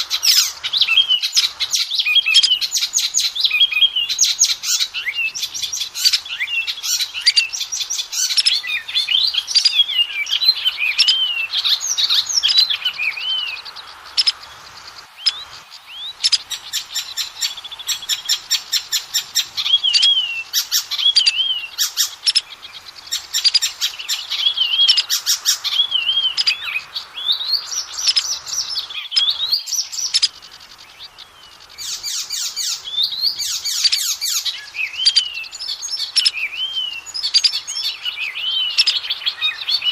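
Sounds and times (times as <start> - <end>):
bird singing whistles and rattles: 15.2 - 22.4.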